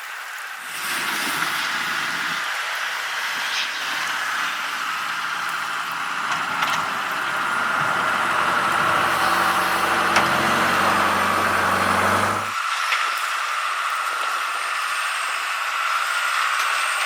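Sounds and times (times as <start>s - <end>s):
road and blower hiss: 3.3s - 12.6s
low engine hum: 4.0s - 12.5s.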